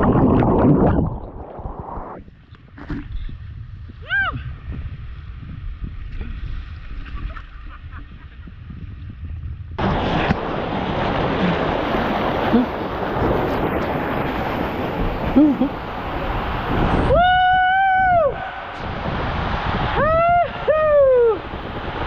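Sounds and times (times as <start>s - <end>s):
wind rumble on microphone: 0.0s - 22.0s
rushing splashing water: 9.8s - 17.7s, 18.4s - 22.0s.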